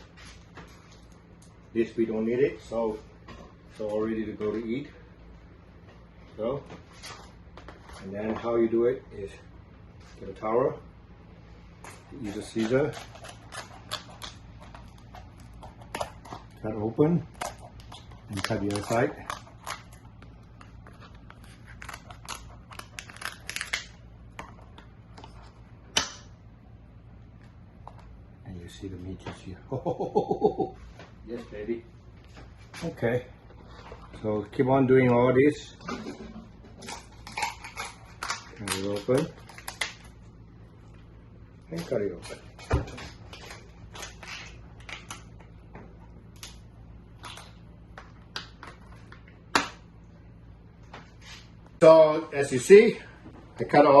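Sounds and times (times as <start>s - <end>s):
scissors cutting crab shell: 12.2s - 16.6s.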